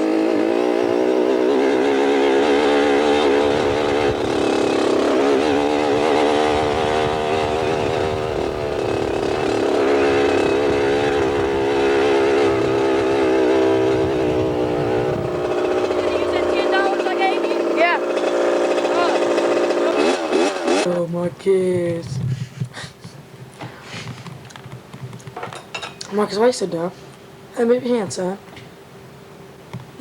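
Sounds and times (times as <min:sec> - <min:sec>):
dirt bike engine revving: 0:00.0 - 0:21.1.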